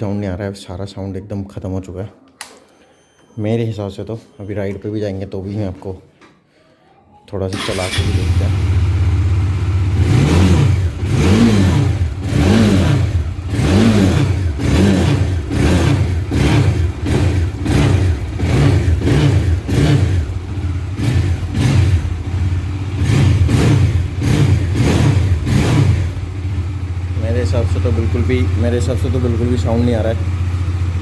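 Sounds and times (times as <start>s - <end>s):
motorcycle engine idling: 7.6s - 10.1s, 13.1s - 31.0s
motorcycle engine revving: 7.6s - 31.0s.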